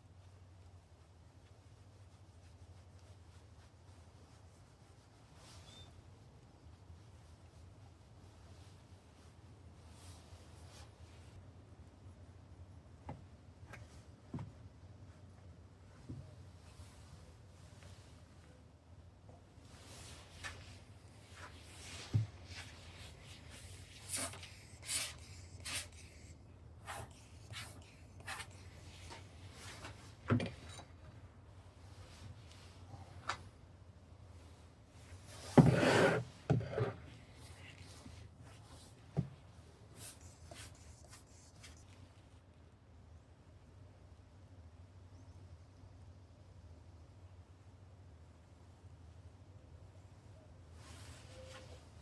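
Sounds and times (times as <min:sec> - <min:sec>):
scraping on sand mould: 0:35.4 - 0:37.0.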